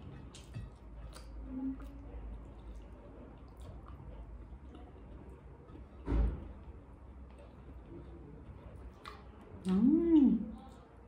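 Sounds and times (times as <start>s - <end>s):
wet chewing: 0.0s - 11.0s.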